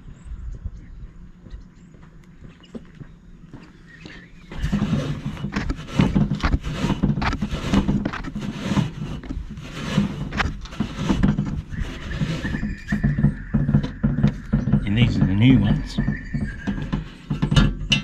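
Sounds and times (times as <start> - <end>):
rag rubbing on metal: 4.5 - 18.0.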